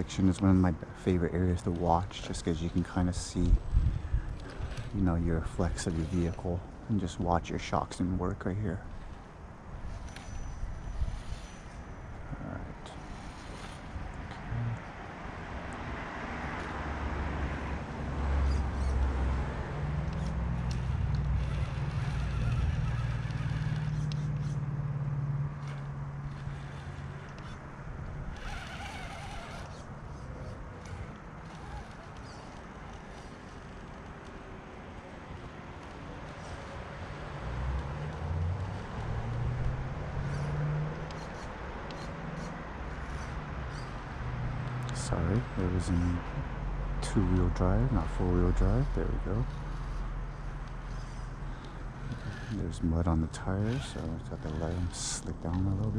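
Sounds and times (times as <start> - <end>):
electric motor hum: 12.9 - 15.0, 17.8 - 44.7, 48.0 - 55.9.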